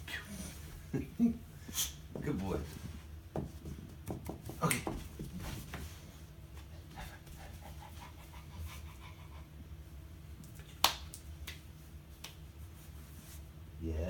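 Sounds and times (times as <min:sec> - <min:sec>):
dog panting: 0:06.6 - 0:09.8.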